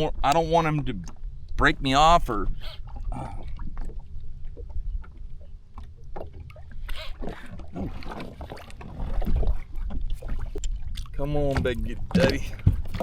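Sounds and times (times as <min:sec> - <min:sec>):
water lapping and splashing: 0:00.0 - 0:13.0
knocks against hull: 0:11.4 - 0:13.0.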